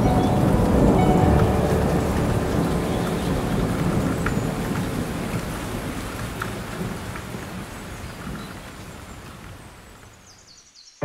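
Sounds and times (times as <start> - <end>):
thunder: 0.0 - 8.6
rain: 0.0 - 11.0.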